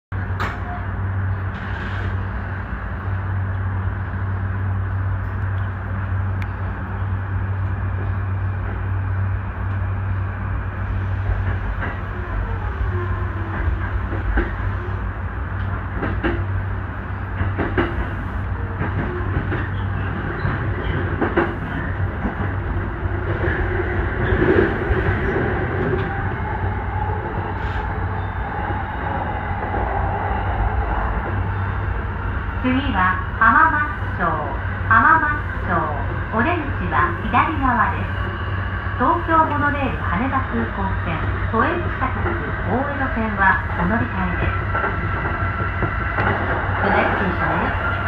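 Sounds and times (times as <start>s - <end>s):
electric train hum: 0.1s - 48.0s.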